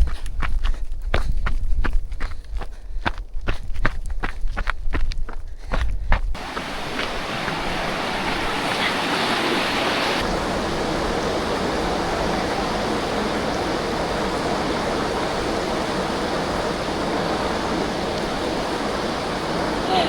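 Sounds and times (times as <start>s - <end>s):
bright hiss: 6.4s - 20.0s
waterfall rushing: 6.4s - 20.0s.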